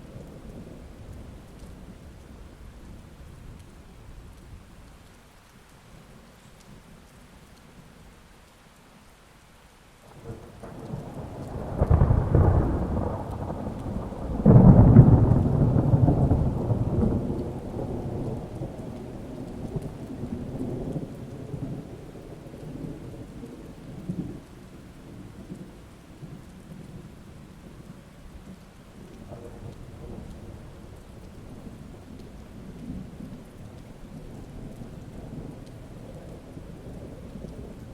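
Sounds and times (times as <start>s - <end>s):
steady rain: 0.0s - 37.9s
thunder rumbling: 10.1s - 37.9s.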